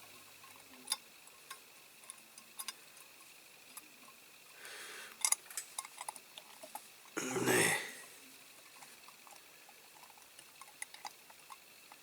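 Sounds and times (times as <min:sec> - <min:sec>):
small metal clicks and taps: 0:00.4 - 0:03.1.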